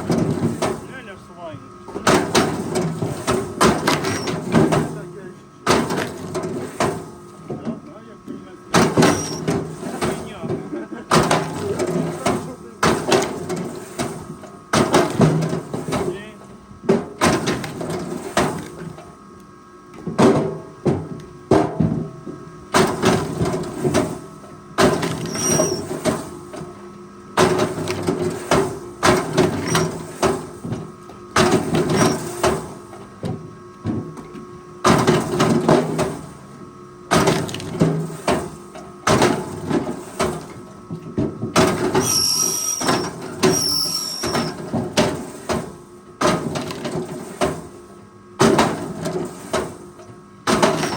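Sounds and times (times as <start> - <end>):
clanks and knocks: 1.9 - 5.0, 5.7 - 16.2
machine engine tone: 3.8 - 4.5, 8.9 - 9.5, 25.2 - 25.9, 42.0 - 44.6
high squeals: 9.0 - 9.5, 25.2 - 25.9, 42.0 - 44.5.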